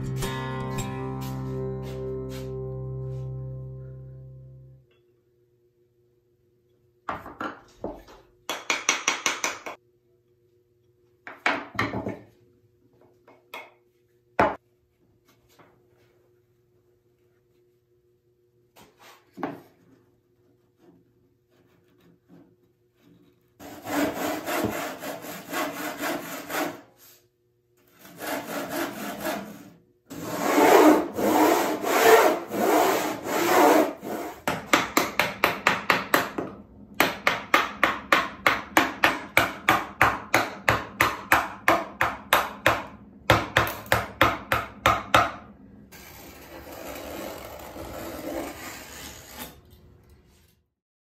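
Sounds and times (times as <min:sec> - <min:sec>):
hand saw cutting wood: 0:23.6 - 0:27.2, 0:27.9 - 0:34.7, 0:45.9 - 0:49.6
mallet striking chisel: 0:34.4 - 0:45.4
knife scraping wood: 0:46.0 - 0:49.7.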